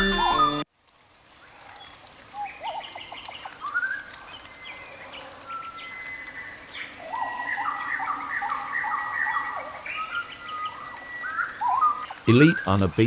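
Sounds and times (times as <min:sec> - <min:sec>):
faint outdoor hiss: 0:12.2 - 0:13.0.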